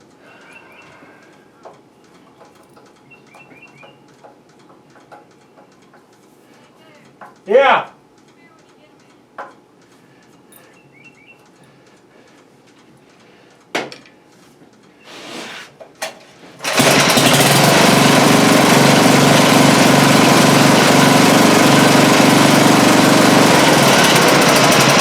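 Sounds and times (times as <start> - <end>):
short rustle: 14.4 - 16.6
tiller engine running: 16.6 - 25.0.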